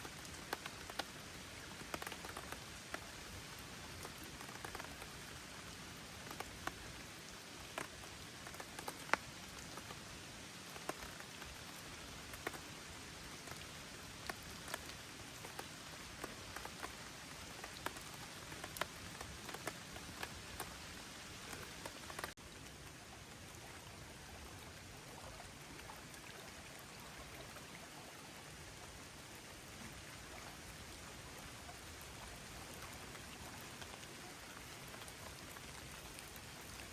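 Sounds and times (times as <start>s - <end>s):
raindrops tapping: 0.0s - 10.0s, 10.6s - 12.7s, 13.3s - 22.4s
gentle rain hiss: 0.0s - 36.9s.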